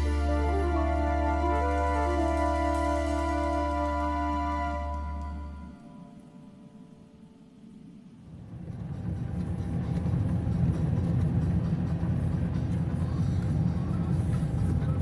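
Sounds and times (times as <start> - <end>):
low steady rumble: 8.2 - 15.0.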